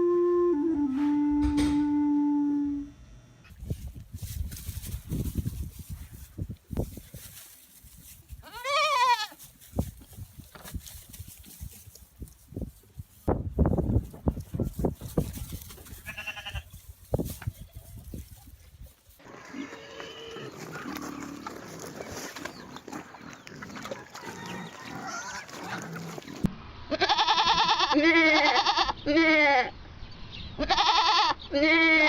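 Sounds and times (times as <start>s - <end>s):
background noise: 0.0s - 32.0s
farm animal calls: 8.4s - 9.5s, 19.2s - 29.7s, 30.6s - 32.0s.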